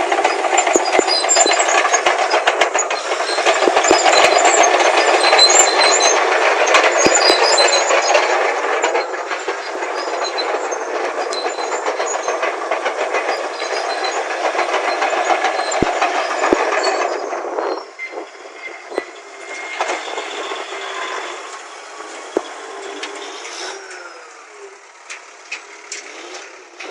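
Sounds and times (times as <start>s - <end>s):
bulldozer diesel engine: 0.0s - 26.9s
steel tracks clattering: 0.0s - 26.9s.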